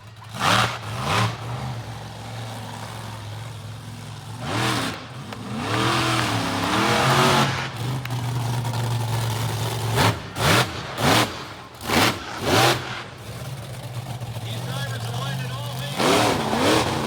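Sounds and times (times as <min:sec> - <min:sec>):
monster truck engine idling and revving: 0:00.0 - 0:17.0.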